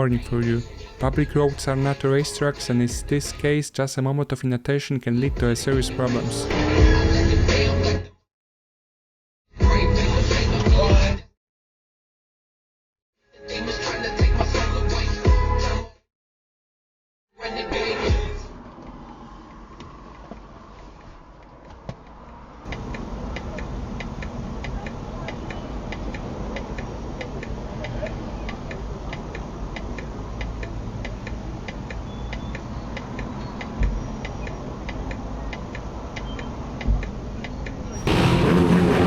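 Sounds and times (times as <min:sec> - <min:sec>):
regular ticking: 0:22.7 - 0:37.8
low rumble: 0:37.9 - 0:39.0.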